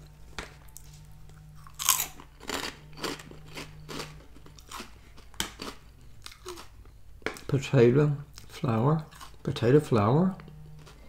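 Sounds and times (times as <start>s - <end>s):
person chewing crunchy snack: 0.7s - 7.0s, 8.3s - 9.5s, 10.4s - 11.0s.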